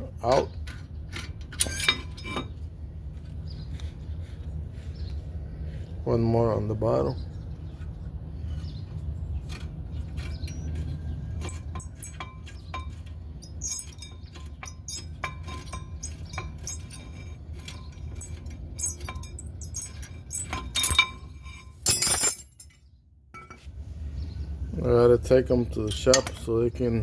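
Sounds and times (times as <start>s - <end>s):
steady low hum: 0.0s - 22.8s
hand tools clinking on metal: 0.7s - 2.5s, 9.5s - 22.8s, 25.7s - 26.6s.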